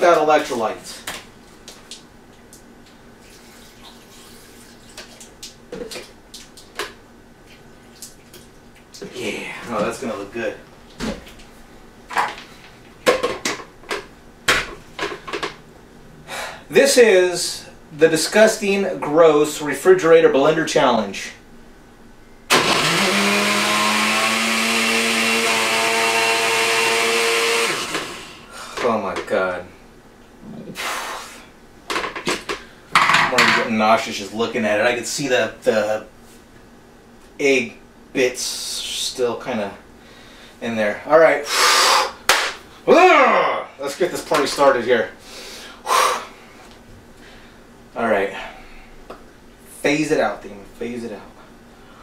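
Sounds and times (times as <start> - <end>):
blender motor running: 22.5 - 28.6.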